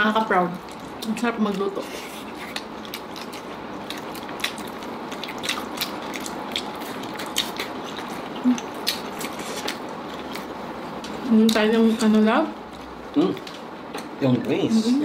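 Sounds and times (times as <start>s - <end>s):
people chewing food: 0.0s - 15.0s
mouth clicks and smacks: 2.2s - 10.5s.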